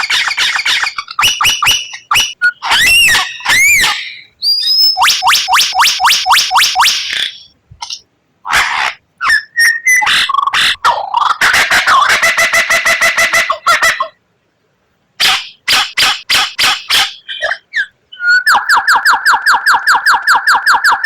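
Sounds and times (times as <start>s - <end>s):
songbird whistling and rattling: 0.0s - 8.0s, 9.2s - 10.8s, 16.3s - 21.0s.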